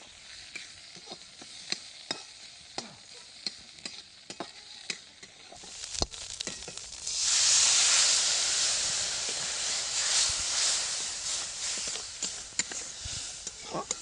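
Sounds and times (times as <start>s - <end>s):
frying in hot oil sizzling: 0.0s - 14.0s
spatula scraping a pan: 3.4s - 14.0s.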